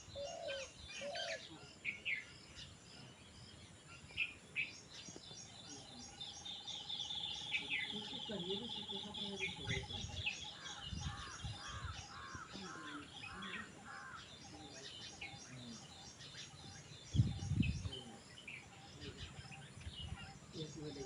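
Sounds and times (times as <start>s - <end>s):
harsh bird calls: 4.1s - 21.0s
high bird chirping: 4.2s - 21.0s.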